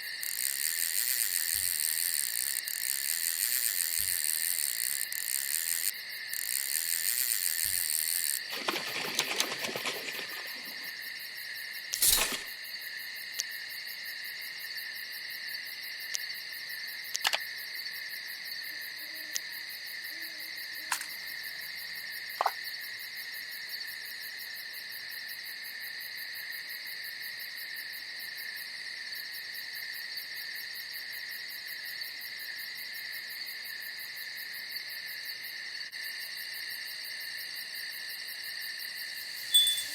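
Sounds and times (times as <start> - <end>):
night insects chirring: 0.0 - 39.9
brief rustle: 8.5 - 10.9, 12.0 - 12.6, 20.9 - 21.2, 39.3 - 39.9.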